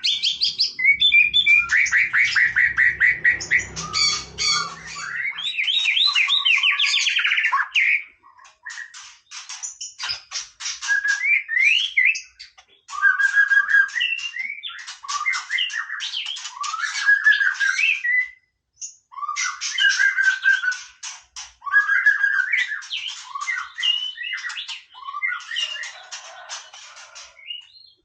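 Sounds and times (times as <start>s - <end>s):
bird singing clicks and whistles: 8.4s - 18.3s, 19.4s - 27.6s.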